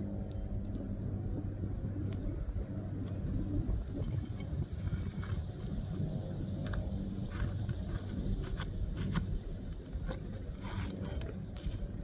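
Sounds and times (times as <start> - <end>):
steady low rumble: 0.0 - 12.0
nail-pulling tool scraping shingles: 10.0 - 12.0.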